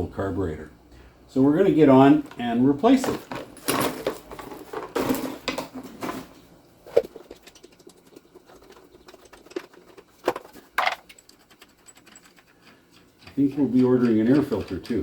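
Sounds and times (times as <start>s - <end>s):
hand tools clicking and knocking: 7.0s - 15.0s.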